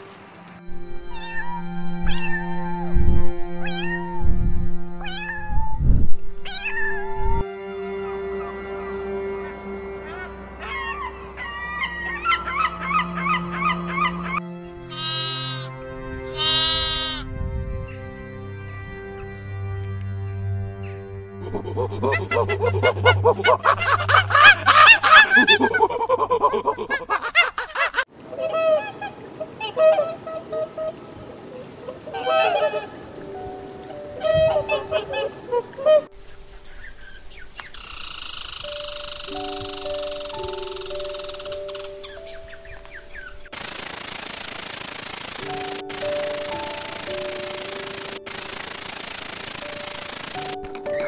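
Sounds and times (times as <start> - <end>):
cat meowing: 1.1 - 2.9, 3.6 - 4.3, 5.0 - 7.4
honk-like animal calls: 9.3 - 15.7, 16.3 - 17.3, 28.3 - 33.0, 33.9 - 36.1
short waterbird calls: 14.9 - 15.7, 16.4 - 17.2.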